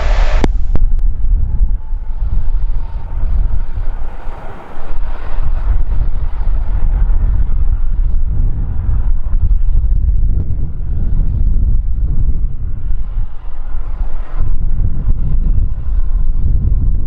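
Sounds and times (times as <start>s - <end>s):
jet engines rushing: 0.0s - 17.0s
wind buffeting microphone: 0.0s - 17.0s.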